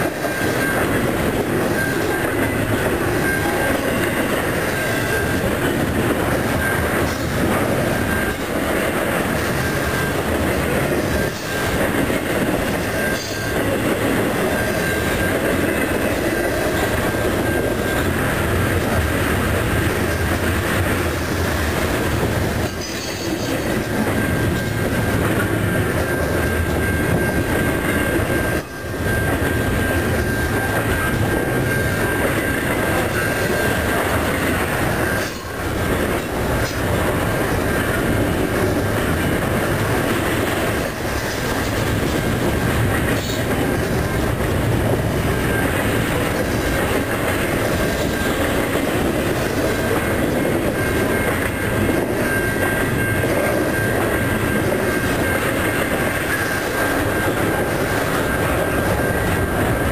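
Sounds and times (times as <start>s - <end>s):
high wheel squeal: 0.0s - 18.9s
freight train wheels rumbling on rail: 0.0s - 59.9s.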